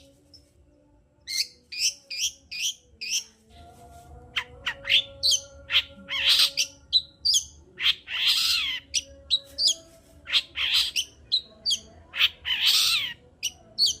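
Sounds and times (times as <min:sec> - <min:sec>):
harsh scratchy bird calls: 0:04.4 - 0:14.0.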